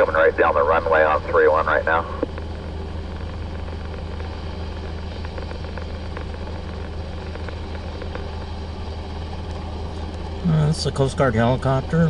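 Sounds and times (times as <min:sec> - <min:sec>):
aircraft engine droning: 0:00.0 - 0:12.0.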